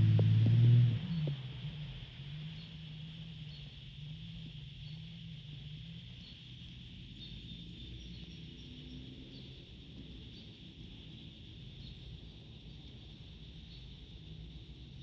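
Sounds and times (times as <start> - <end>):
faint low rumble: 0.0 - 7.8.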